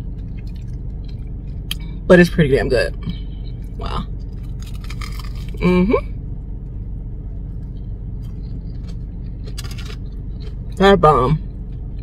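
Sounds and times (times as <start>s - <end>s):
crunchy biting and chewing: 0.0s - 1.9s, 4.2s - 5.7s, 7.3s - 10.8s
car cabin hum: 0.0s - 12.0s.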